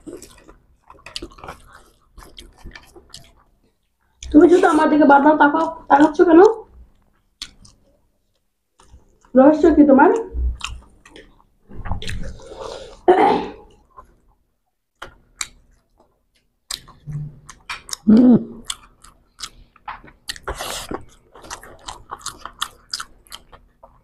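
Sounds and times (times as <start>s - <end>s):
people chewing food: 0.0s - 9.4s, 10.1s - 24.0s
wet mouth sounds: 10.4s - 13.1s.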